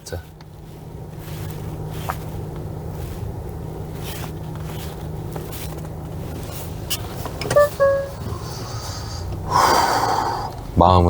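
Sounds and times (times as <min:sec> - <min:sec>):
car engine and road hum: 0:00.0 - 0:11.0
short electronic beeps: 0:07.5 - 0:08.3.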